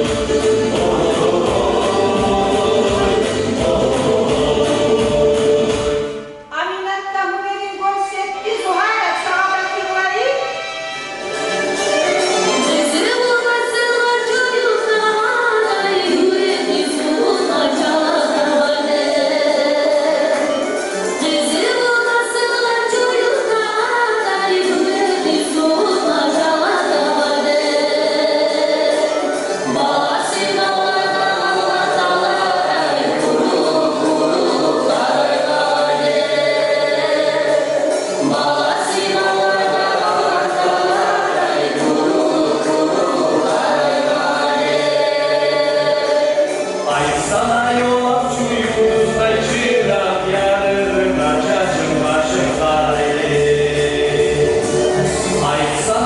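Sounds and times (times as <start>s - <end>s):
folk music: 0.0s - 6.5s, 8.0s - 56.0s
woman singing: 12.6s - 41.0s.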